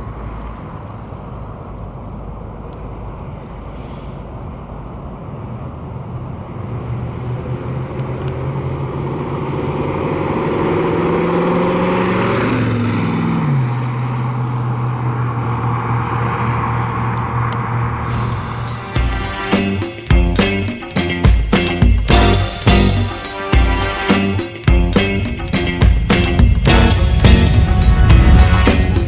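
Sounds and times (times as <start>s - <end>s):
car engine accelerating: 4.3s - 19.9s, 24.6s - 29.0s.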